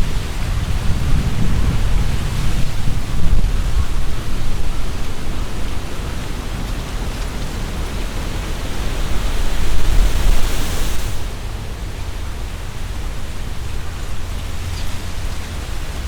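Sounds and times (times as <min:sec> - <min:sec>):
leaves rustling in wind: 0:00.0 - 0:16.0
wind buffeting microphone: 0:00.0 - 0:16.0.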